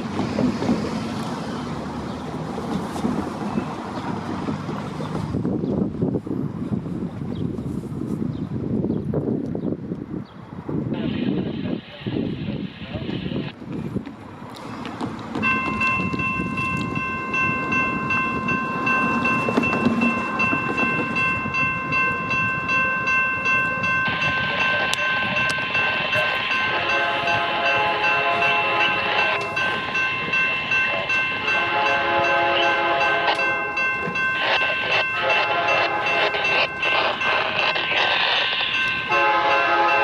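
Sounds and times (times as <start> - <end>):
railroad crossing bells ringing: 15.3 - 40.0
locomotive horn: 24.1 - 30.0, 30.9 - 40.0.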